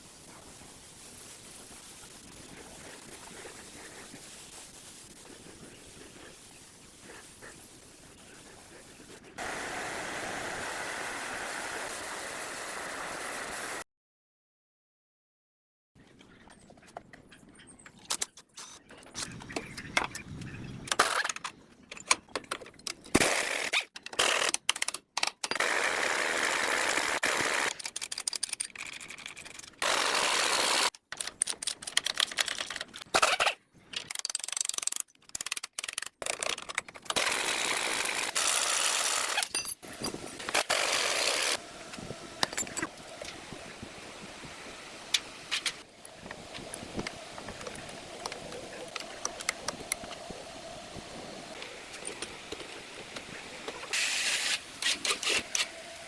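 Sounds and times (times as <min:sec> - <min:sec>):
power tool noise: 0:09.4 - 0:13.8, 0:25.6 - 0:27.8, 0:29.8 - 0:30.9, 0:37.2 - 0:43.2.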